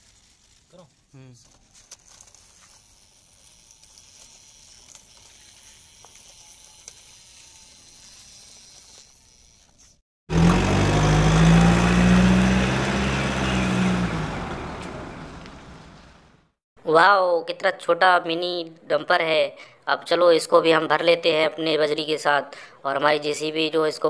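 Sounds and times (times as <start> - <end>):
engine humming: 10.3 - 16.5.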